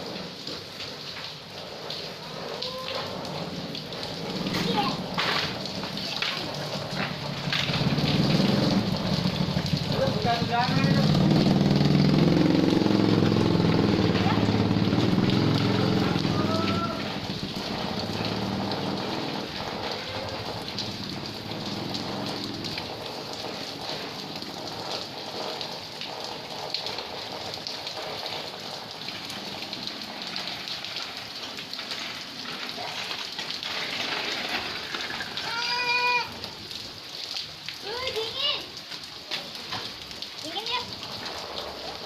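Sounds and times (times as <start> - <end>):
rain pattering on surfaces: 0.0 - 42.0
engine: 6.9 - 28.6.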